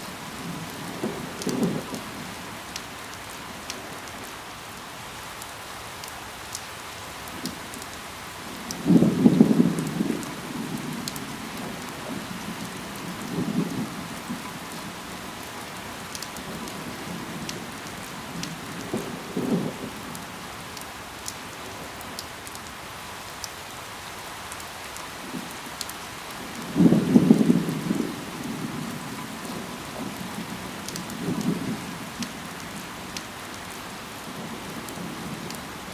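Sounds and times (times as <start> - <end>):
rain drip ticks: 0.0 - 35.9
rain falling: 0.0 - 35.9
low rumble of thunder: 0.1 - 3.1, 8.6 - 20.6, 26.3 - 35.9.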